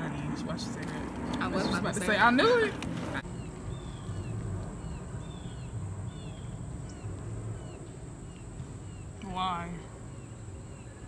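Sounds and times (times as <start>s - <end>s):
bird chirping: 3.2s - 11.0s.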